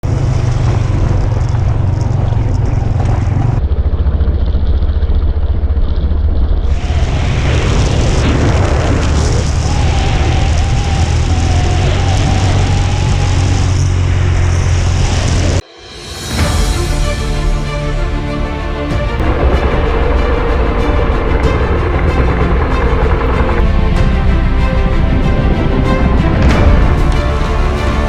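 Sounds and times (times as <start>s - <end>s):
motorcycle engine rumble: 0.0s - 15.6s.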